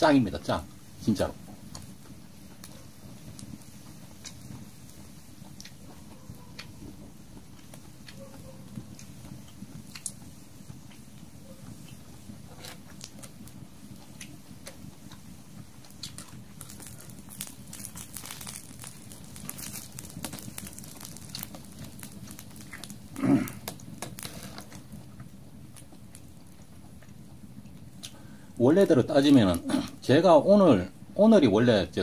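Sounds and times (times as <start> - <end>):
fire crackling and popping: 0.0 - 32.0
meat sizzling: 8.8 - 26.9, 28.1 - 30.8.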